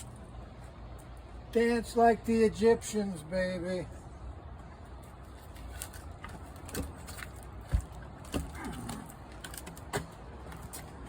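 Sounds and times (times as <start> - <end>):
heavy log knocking while rolled: 6.2 - 10.1.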